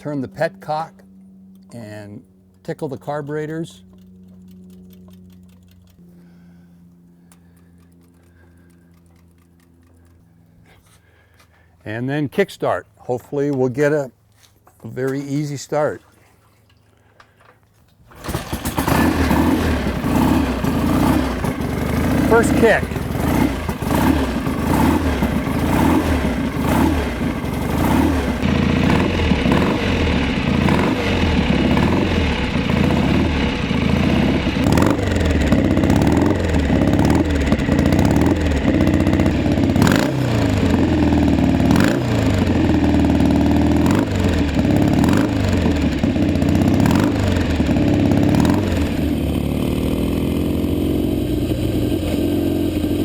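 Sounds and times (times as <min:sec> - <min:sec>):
motorcycle engine revving: 0:18.0 - 0:53.0.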